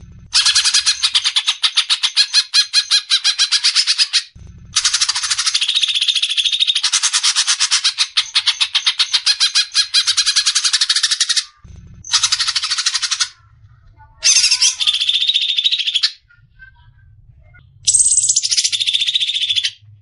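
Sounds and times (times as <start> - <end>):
bird rattling trill: 0.3 - 13.4, 17.9 - 19.8.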